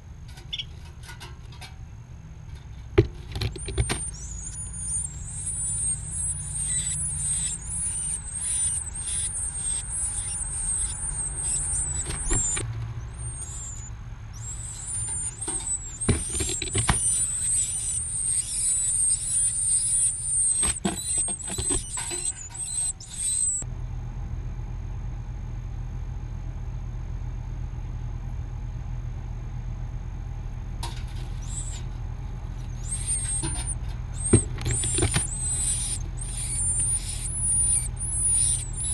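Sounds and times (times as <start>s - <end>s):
nestling birds begging: 0.0s - 23.6s, 30.6s - 38.9s
steady low rumble: 4.0s - 16.4s, 22.0s - 38.9s.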